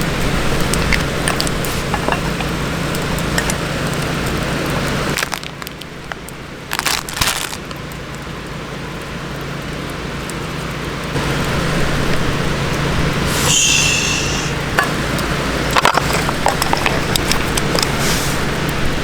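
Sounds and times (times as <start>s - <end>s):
campfire crackles: 0.0s - 19.0s
food sizzling in a wok: 13.2s - 15.0s.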